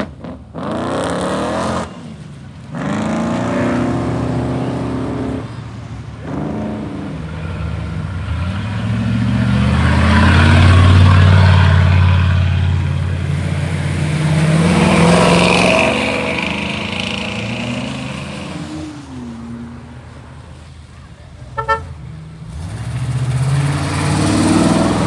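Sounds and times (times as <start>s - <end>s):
supercar engines revving: 0.0s - 25.0s
tyres hissing on wet road: 22.5s - 25.0s.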